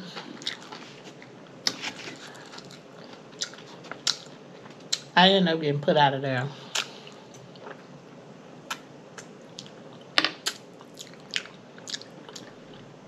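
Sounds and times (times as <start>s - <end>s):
person chewing and lip-smacking: 2.4s - 5.1s, 8.7s - 12.6s.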